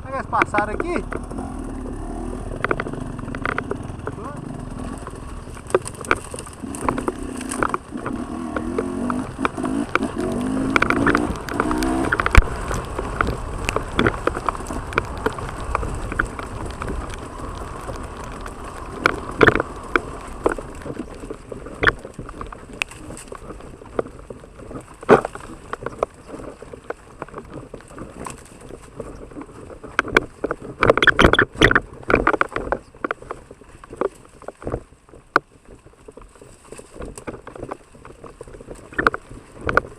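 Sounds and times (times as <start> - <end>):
motorcycle engine revving: 0.0 - 26.6
wet noisy background: 0.0 - 39.9
sharp knocks and clatter: 0.2 - 17.2, 17.8 - 24.2.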